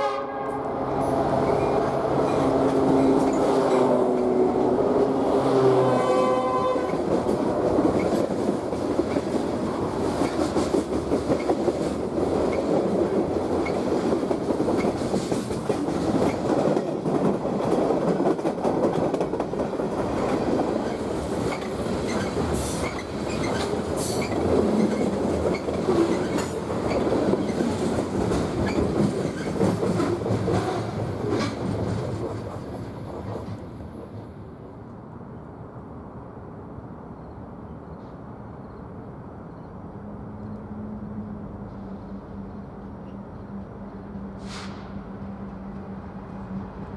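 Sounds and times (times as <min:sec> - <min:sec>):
train horn: 0:00.0 - 0:07.2
train wheels clattering on rails: 0:01.0 - 0:34.4.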